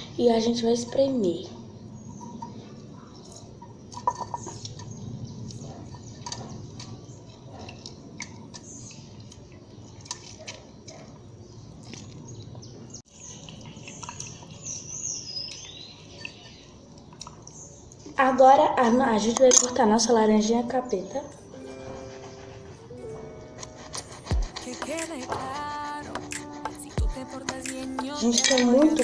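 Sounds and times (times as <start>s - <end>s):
small birds chirping: 0.0s - 19.2s
metal strainer and glass clicks: 28.3s - 29.0s.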